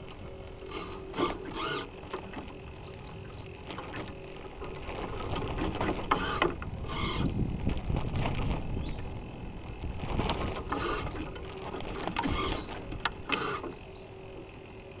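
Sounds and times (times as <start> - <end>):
faint steady hum: 0.0 - 15.0
servo motors whirring: 0.6 - 4.0, 5.6 - 7.4, 10.5 - 14.0.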